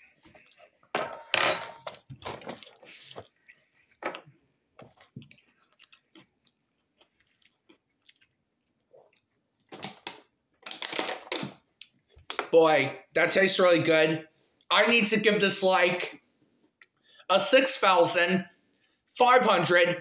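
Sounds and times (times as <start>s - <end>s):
man chewing with wet mouth sounds: 0.0s - 0.9s, 2.0s - 9.9s.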